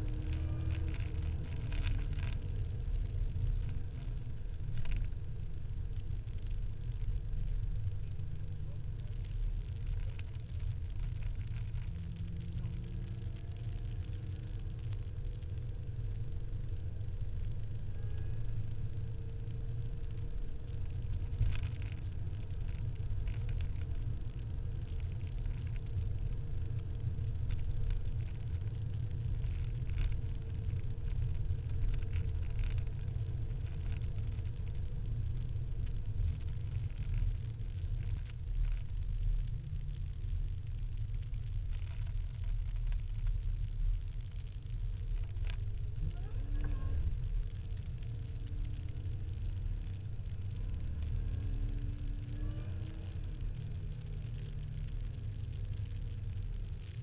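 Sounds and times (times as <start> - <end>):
car engine rumbling: 0.0 - 57.0
road noise: 0.0 - 57.0.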